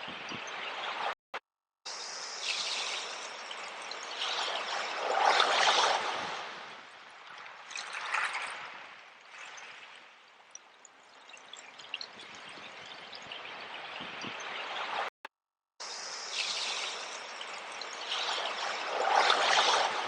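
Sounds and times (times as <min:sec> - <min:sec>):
sea waves washing in: 0:01.9 - 0:10.2, 0:15.8 - 0:20.0.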